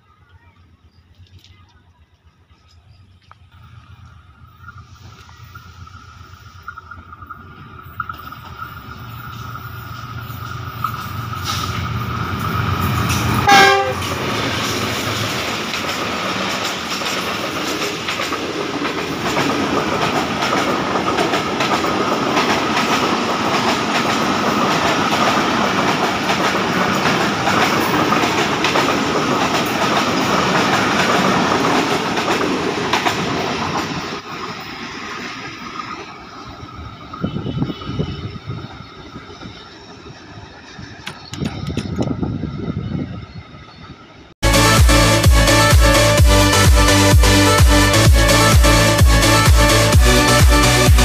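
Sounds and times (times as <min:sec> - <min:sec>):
train wheels clicking on rails: 0:00.2 - 0:42.8
train horn blast: 0:13.4 - 0:14.2, 0:37.0 - 0:38.7.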